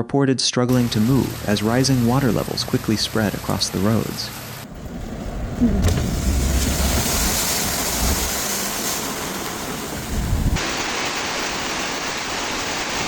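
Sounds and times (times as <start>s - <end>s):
heavy rain hissing: 0.7s - 13.0s
low rumble: 4.6s - 10.6s.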